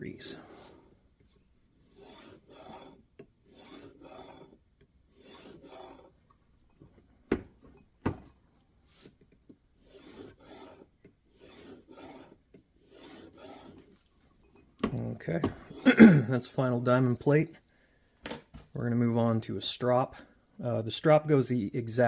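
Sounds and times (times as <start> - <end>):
sharpening plate rasping on knife: 1.9 - 6.1, 9.8 - 13.8.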